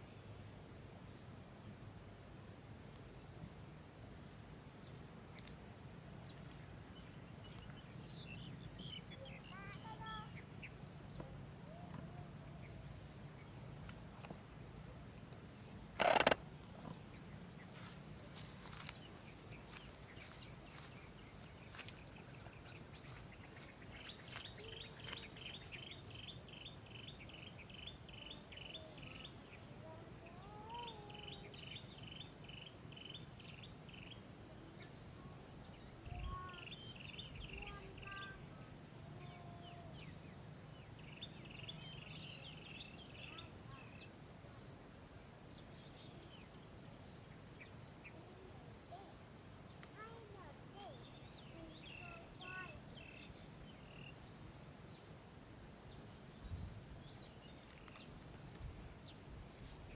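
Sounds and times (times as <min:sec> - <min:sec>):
sharp clicks: 0:16.0 - 0:16.4.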